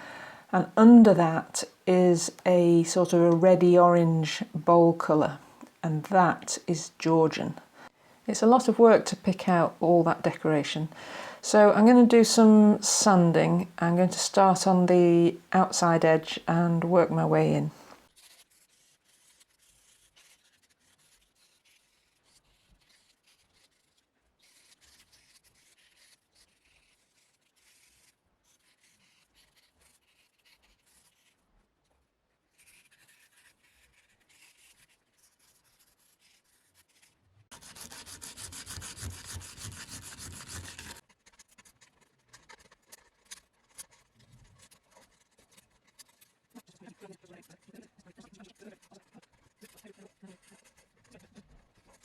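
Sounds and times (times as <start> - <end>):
sanding a wooden frame: 36.0 - 41.0.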